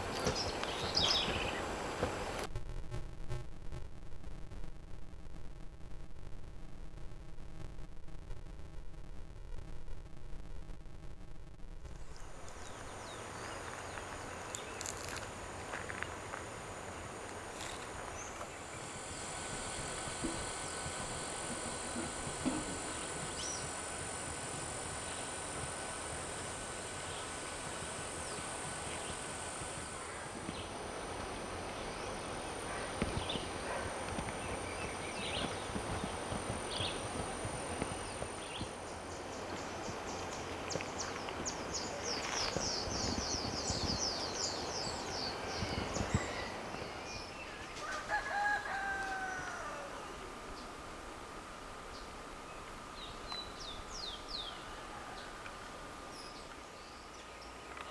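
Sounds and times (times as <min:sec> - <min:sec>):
background hiss: 0:00.0 - 0:57.9
thin high steady tone: 0:12.1 - 0:39.8.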